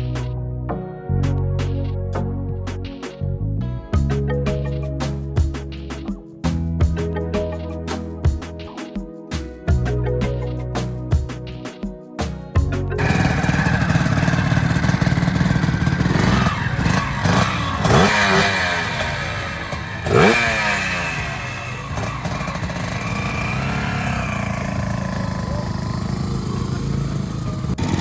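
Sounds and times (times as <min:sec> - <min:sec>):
background music: 0:00.0 - 0:28.0
motorcycle engine revving: 0:13.0 - 0:28.0.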